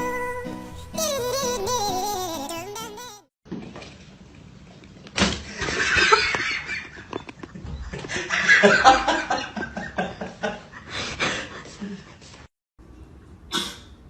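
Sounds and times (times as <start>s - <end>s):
people laughing: 7.9s - 10.8s.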